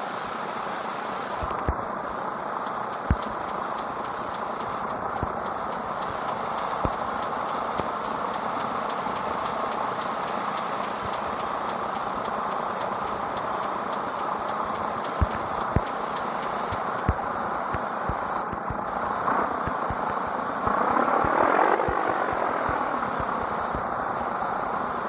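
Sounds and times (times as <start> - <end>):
light regular ticking: 2.6 - 18.9, 19.6 - 23.9.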